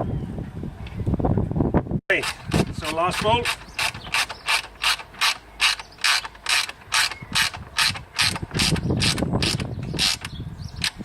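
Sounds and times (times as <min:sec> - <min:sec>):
ratchet wrench clicking: 0:02.2 - 0:11.0.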